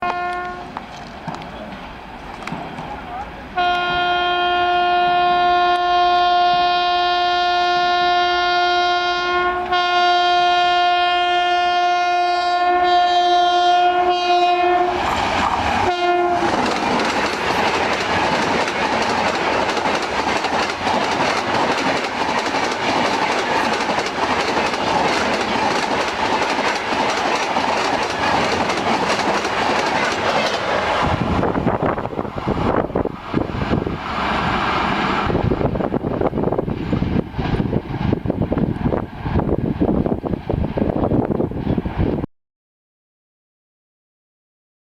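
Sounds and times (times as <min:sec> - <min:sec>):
locomotive horn: 0:00.0 - 0:00.7, 0:03.6 - 0:15.1, 0:15.8 - 0:16.6
train passing at speed: 0:00.0 - 0:42.3
wheels clattering on rail joints: 0:16.4 - 0:31.1.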